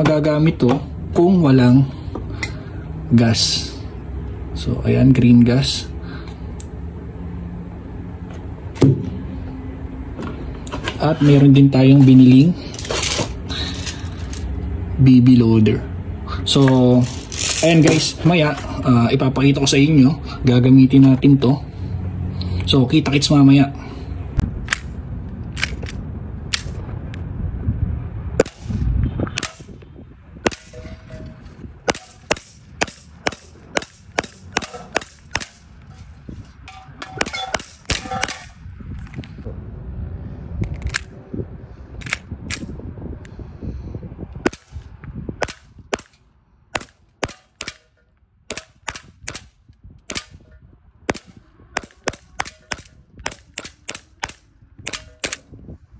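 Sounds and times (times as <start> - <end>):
airsoft pistol firing: 30.4 - 30.8, 31.8 - 35.7, 51.1 - 55.4.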